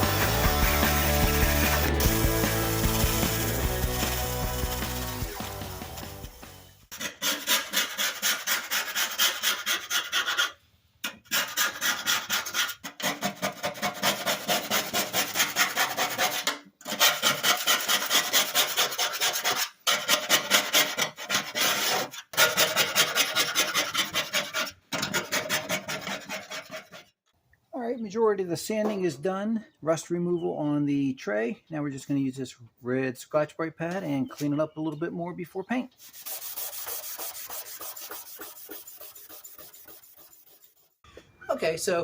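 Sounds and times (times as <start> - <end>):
abrasive scraping sheet steel: 36.0 - 41.0.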